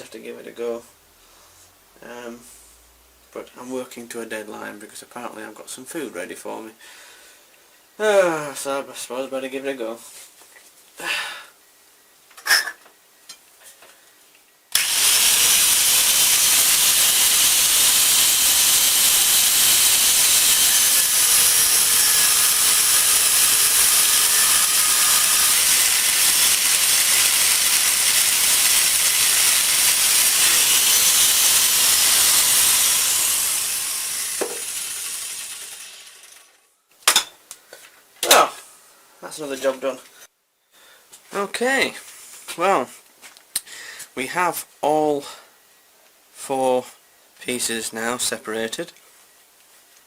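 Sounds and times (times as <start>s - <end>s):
cutting disc grinding steel: 14.7s - 36.6s.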